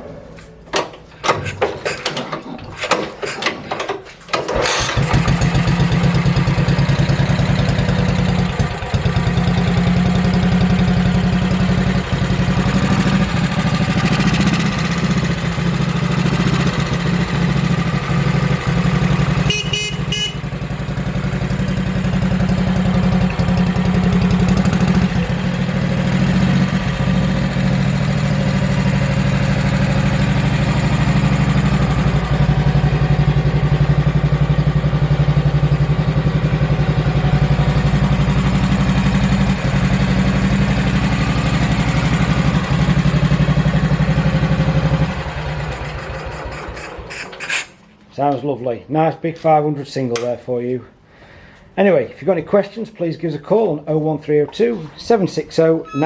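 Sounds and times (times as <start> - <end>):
engine starting clicks and knocks: 0.6 - 19.5, 44.9 - 47.8
motorcycle engine idling: 4.8 - 47.1.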